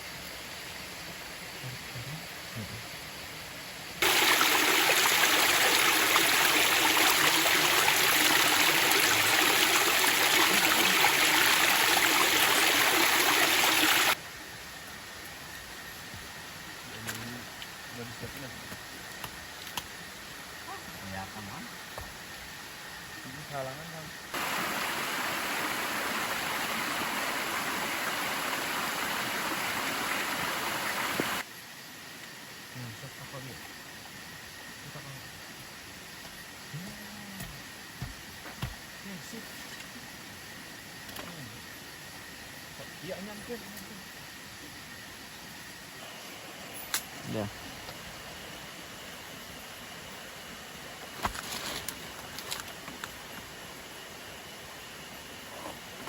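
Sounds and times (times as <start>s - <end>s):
rushing water: 4.0s - 14.2s, 24.3s - 31.4s.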